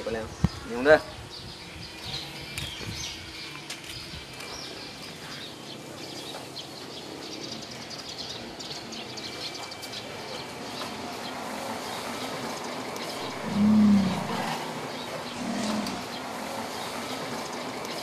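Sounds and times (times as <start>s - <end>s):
birds chirping: 0.5s - 18.0s
steady background hiss: 9.8s - 18.0s.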